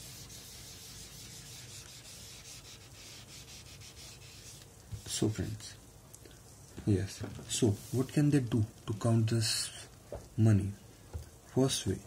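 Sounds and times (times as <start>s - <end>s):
duster rubbing a board: 0.0s - 5.2s.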